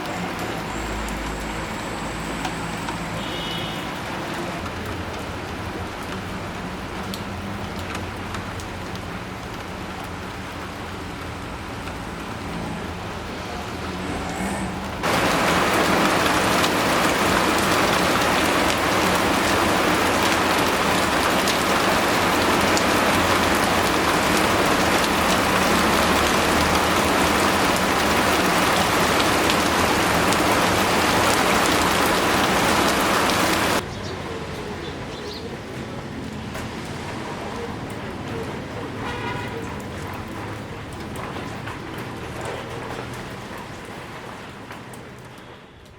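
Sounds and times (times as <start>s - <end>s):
rain falling: 0.0s - 45.9s.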